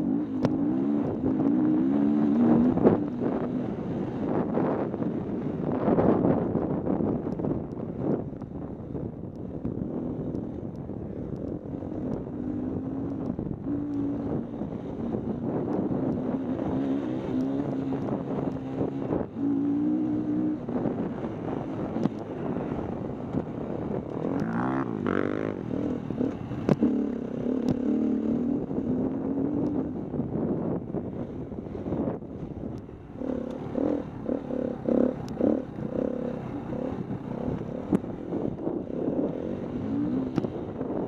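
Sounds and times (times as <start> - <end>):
dirt bike engine revving: 0.0 - 3.6, 24.2 - 29.7, 33.2 - 38.1.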